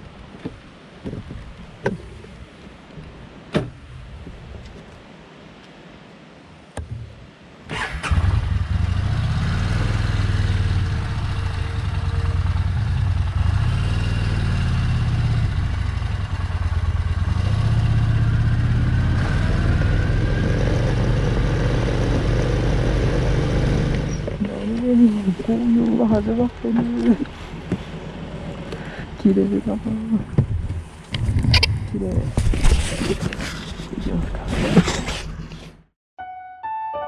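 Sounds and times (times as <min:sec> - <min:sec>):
motorcycle engine starting and running: 0:07.7 - 0:27.3.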